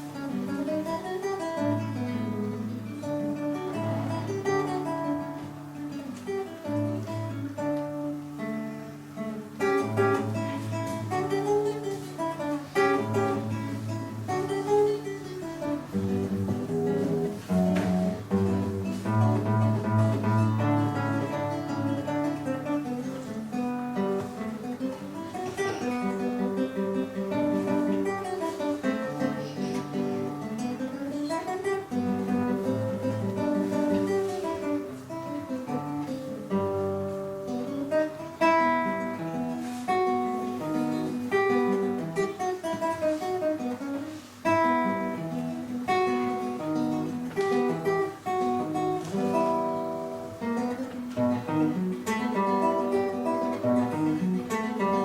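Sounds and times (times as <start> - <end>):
plucked string music: 0.0 - 55.0.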